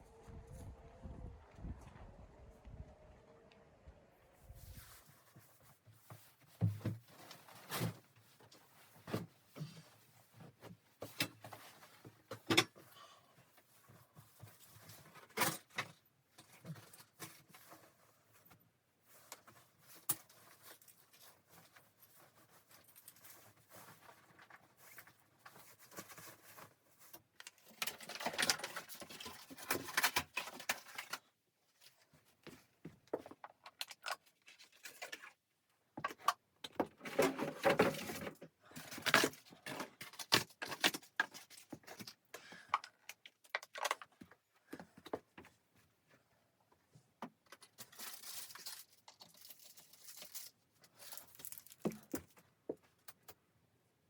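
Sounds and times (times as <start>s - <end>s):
rustling or scraping: 4.3s - 12.3s, 16.4s - 33.3s.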